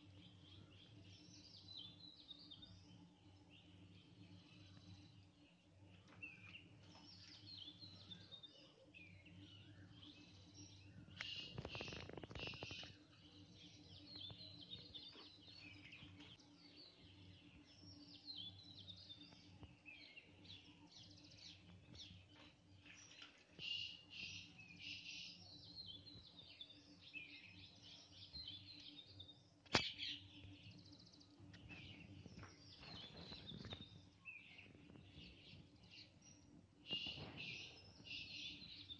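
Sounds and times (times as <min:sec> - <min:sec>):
birds chirping and singing: 0:00.0 - 0:38.9
sharp click: 0:29.6 - 0:30.1.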